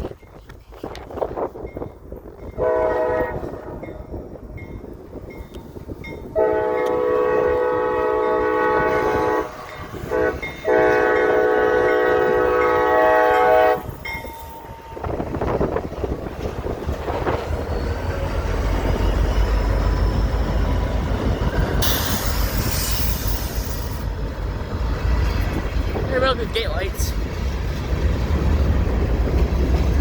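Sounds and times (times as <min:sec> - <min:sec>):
train rumbling: 0:00.0 - 0:30.0
locomotive air horn blasts: 0:02.6 - 0:03.6, 0:06.4 - 0:14.0.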